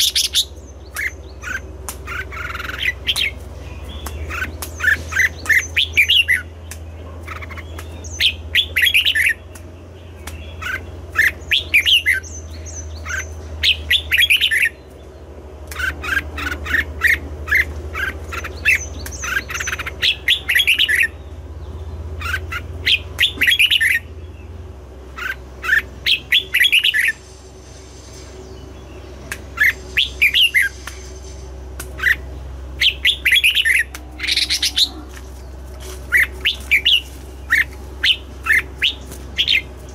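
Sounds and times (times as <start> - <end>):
steady low hum: 0.0 - 39.9
bird singing chirpy whistles: 28.4 - 31.2, 32.0 - 34.9.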